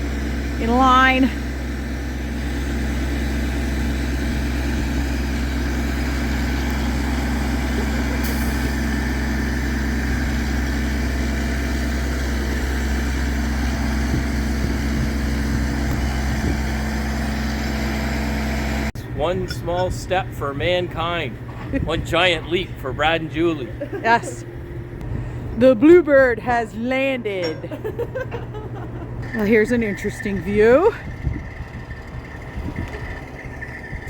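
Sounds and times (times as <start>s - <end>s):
crane engine humming: 0.0s - 34.0s.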